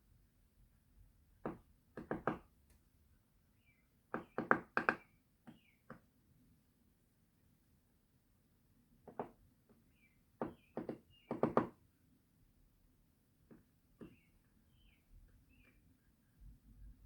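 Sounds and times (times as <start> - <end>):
woodpecker pecking at wood: 10.4 - 11.7.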